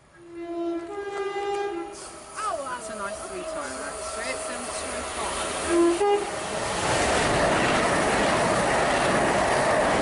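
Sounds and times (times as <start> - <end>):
two-tone train horn: 0.1 - 5.0, 5.6 - 6.4
train rushing past: 0.3 - 10.0.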